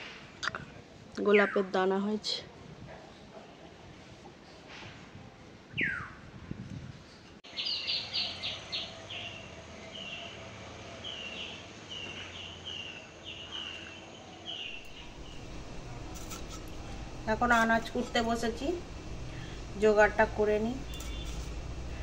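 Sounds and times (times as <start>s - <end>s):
songbird whistling and chirping: 5.8s - 6.2s, 7.5s - 8.9s.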